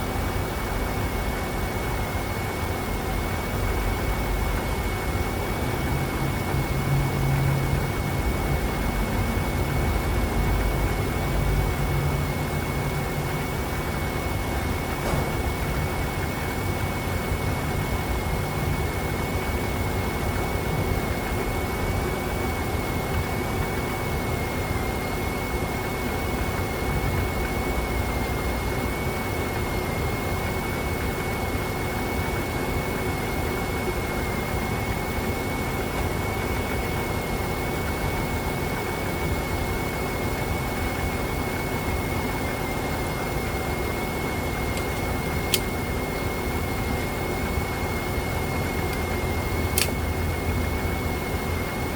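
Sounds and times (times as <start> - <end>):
sharp click: 44.7 - 45.8, 49.7 - 50.0.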